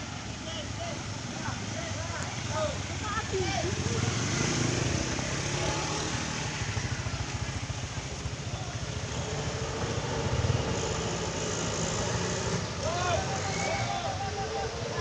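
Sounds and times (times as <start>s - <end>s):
vehicle engine running at low revs: 0.0s - 15.0s.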